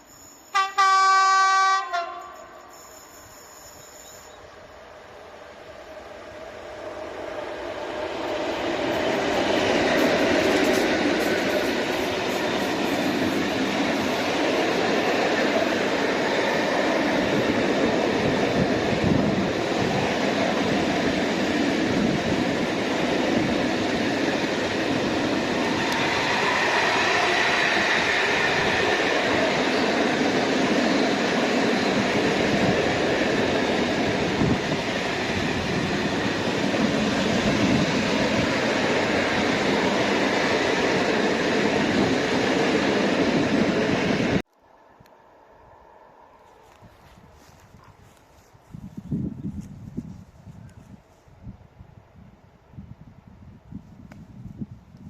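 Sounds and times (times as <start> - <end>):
train wheels rolling over rails: 5.6 - 44.4.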